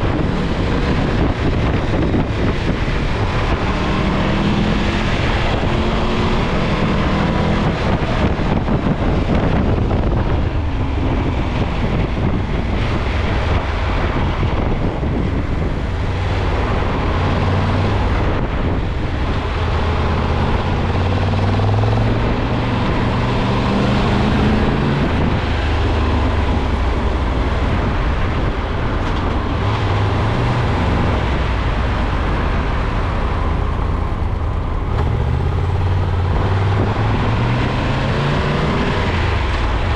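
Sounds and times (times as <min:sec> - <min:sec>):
car engine humming: 0:00.0 - 0:39.9
road noise: 0:00.0 - 0:39.9.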